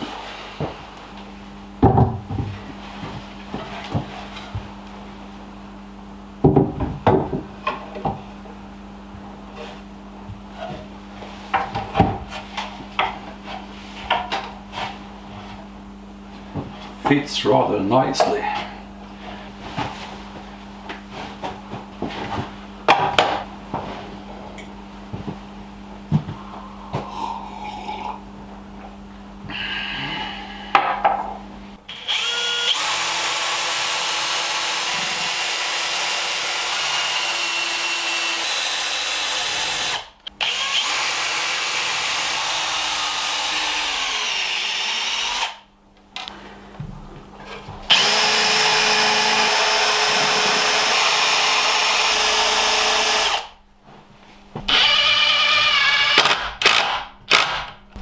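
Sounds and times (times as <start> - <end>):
power drill boring into wood: 31.9 - 45.6, 47.9 - 53.5, 54.7 - 57.7.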